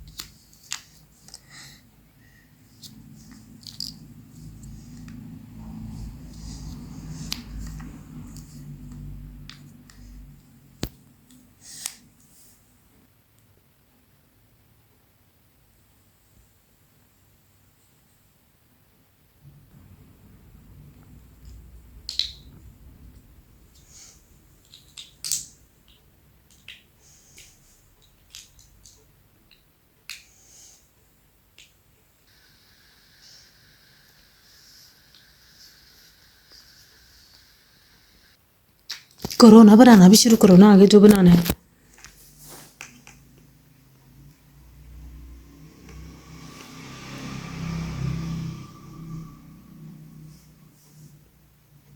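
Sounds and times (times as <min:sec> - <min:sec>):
faint steady hiss: 0:00.0 - 0:47.4
low hum: 0:19.4 - 0:23.8.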